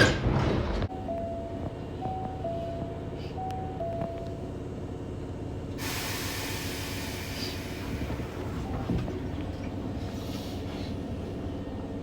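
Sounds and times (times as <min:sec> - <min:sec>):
loud rushing hiss: 0:05.8 - 0:08.4.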